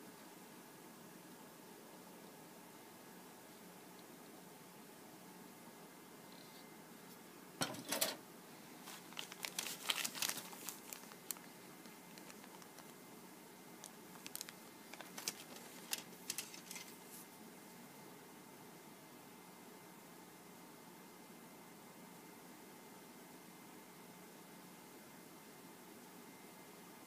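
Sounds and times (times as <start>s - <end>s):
plastic packaging crinkling: 8.8s - 13.0s, 13.8s - 17.1s.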